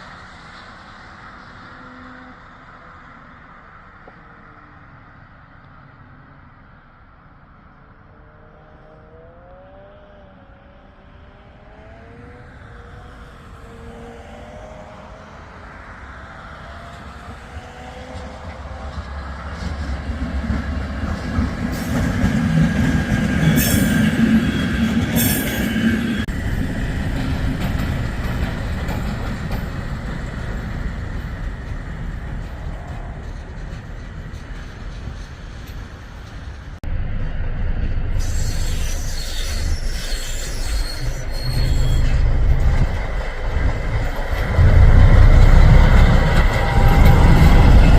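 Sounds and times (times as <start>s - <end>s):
train rumbling past: 0.0s - 6.6s, 11.0s - 47.9s
train wheel squeal: 17.1s - 36.8s, 38.1s - 47.9s
sharp screeches: 38.1s - 42.8s.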